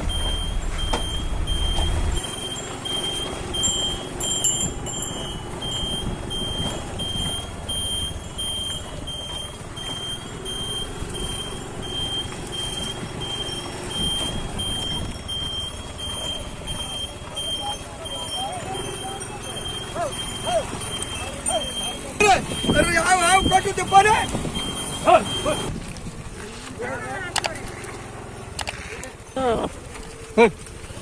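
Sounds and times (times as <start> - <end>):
vehicle warning beeper: 0.0 - 25.8
engine and road noise: 0.0 - 31.0
heavy low engine rumble: 0.0 - 31.0.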